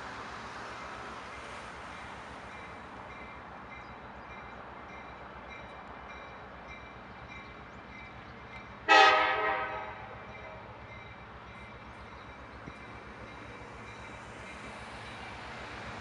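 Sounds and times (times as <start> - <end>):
train horn blast: 8.9 - 10.2.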